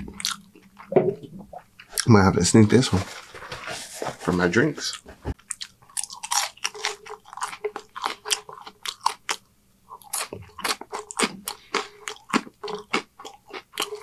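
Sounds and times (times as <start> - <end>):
chewing crunchy fries: 0.1 - 0.9, 4.8 - 14.0.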